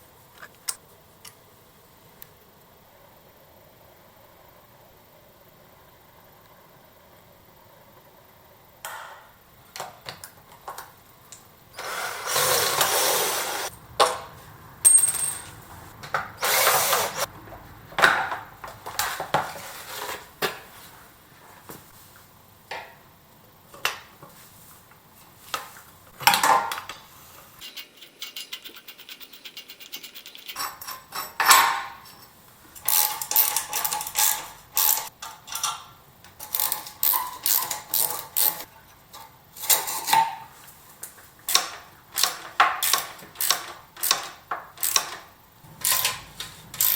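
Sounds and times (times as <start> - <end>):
rasping whirring bursts: 11.7 - 14.9, 15.6 - 17.9, 44.9 - 46.9
metal tool clicks and clanks: 27.6 - 35.8, 41.5 - 46.9.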